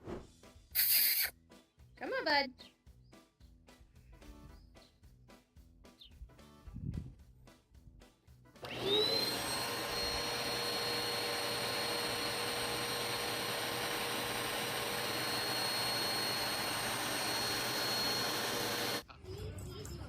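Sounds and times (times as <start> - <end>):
electric motor whining: 8.6 - 19.0.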